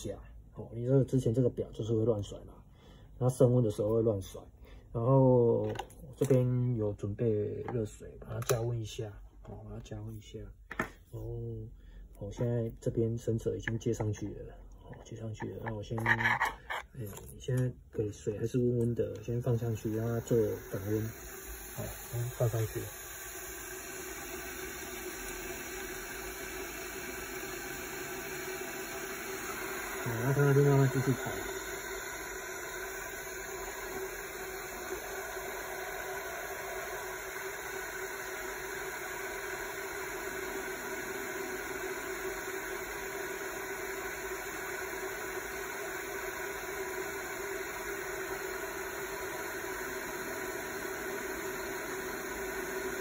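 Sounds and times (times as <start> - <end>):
machine hum: 19.1 - 53.0
even hiss: 19.3 - 53.0.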